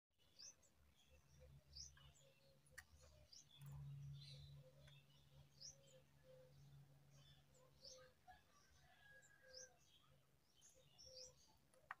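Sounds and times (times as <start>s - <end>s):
low steady hum: 0.2s - 8.2s
faint bird chirping: 0.2s - 12.0s.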